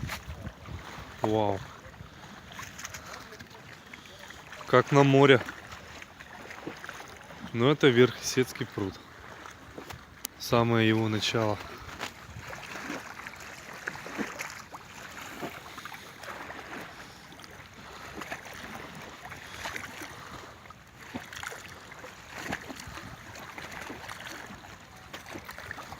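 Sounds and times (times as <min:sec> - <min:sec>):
small waves lapping at shore: 0:00.0 - 0:25.9
wind: 0:00.0 - 0:25.9.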